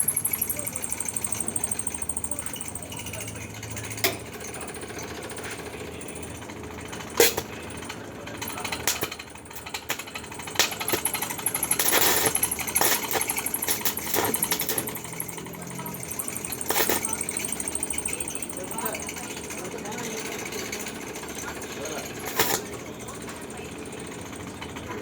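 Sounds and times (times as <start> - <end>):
steady high whine: 0.0 - 19.6
welding arc crackle: 7.1 - 7.5, 8.6 - 19.1, 22.0 - 22.8.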